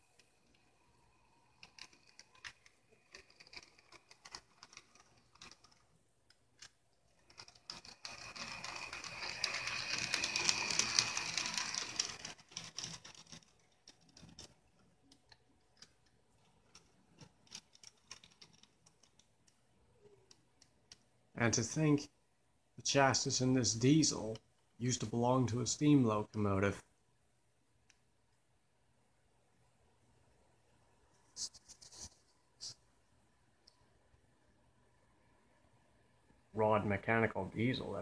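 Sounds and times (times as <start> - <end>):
model train motor whirring: 0.4 - 5.7, 7.2 - 13.5
wheels clicking over rail joints: 7.2 - 13.5.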